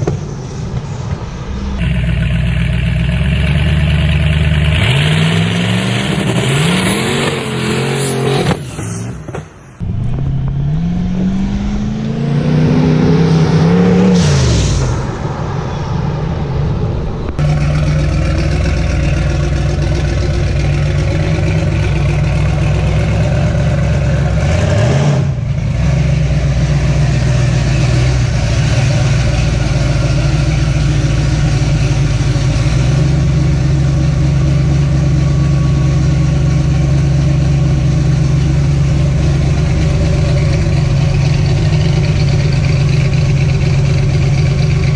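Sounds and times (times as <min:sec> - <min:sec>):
drag car engine running hard: 0:01.6 - 0:07.8, 0:17.3 - 0:44.9.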